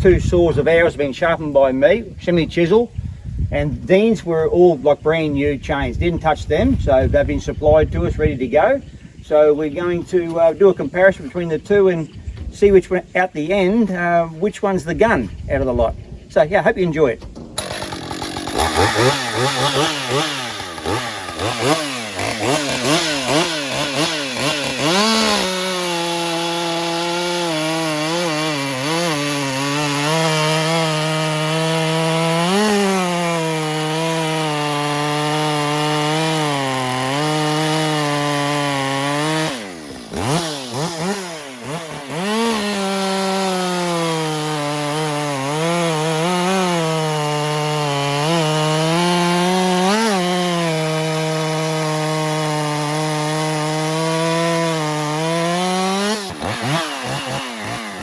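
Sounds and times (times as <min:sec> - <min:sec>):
chainsaw cutting through log: 0:17.2 - 0:58.0
chainsaw revving: 0:17.4 - 0:58.0.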